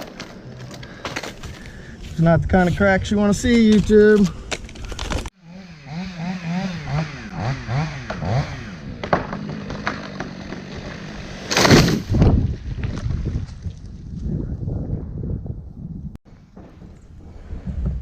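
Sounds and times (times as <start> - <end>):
chainsaw revving: 5.3 - 12.0
loud crash: 11.2 - 12.5.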